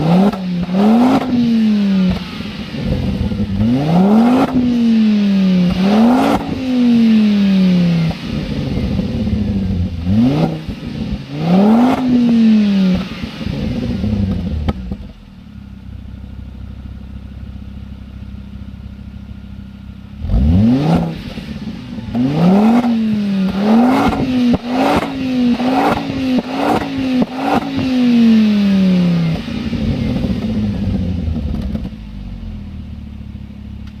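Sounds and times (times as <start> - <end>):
car engine revving: 0.0 - 15.4, 19.9 - 33.1.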